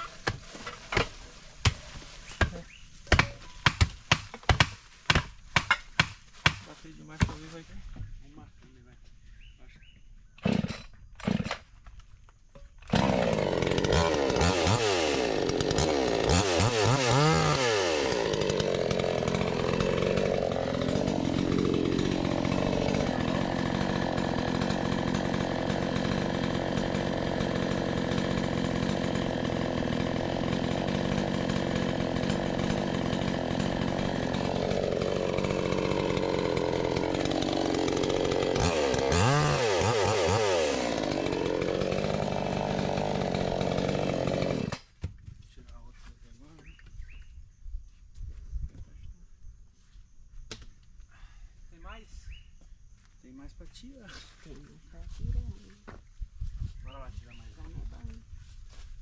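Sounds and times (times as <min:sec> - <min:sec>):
chainsaw cutting wood: 0:00.0 - 0:07.5, 0:10.4 - 0:11.8, 0:12.8 - 0:45.3.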